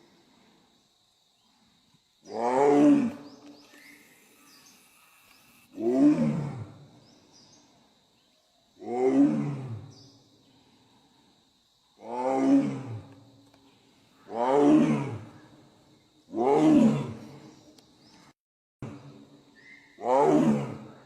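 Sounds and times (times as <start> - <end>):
tiger roaring: 5.7 - 6.8, 8.8 - 9.8, 12.0 - 13.1, 14.3 - 15.3, 16.3 - 17.3, 20.0 - 20.9.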